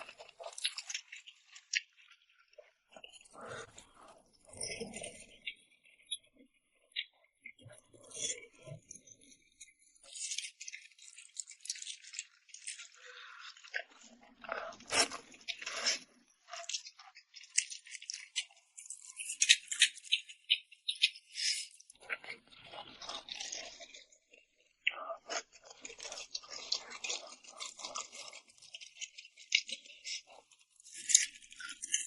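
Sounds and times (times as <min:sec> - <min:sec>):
crunching and chewing: 0:00.0 - 0:32.0
wet mouth clicks: 0:13.6 - 0:16.8.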